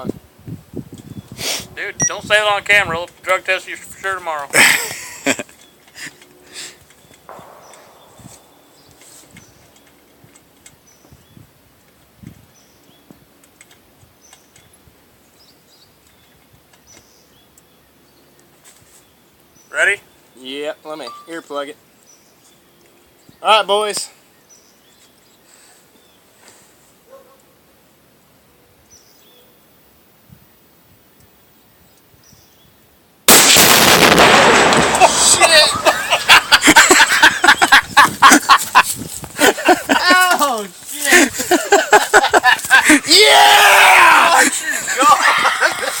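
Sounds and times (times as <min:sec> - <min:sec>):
faint bird chirps: 0:06.9 - 0:10.0
loud explosion: 0:07.3 - 0:08.9, 0:33.3 - 0:36.5.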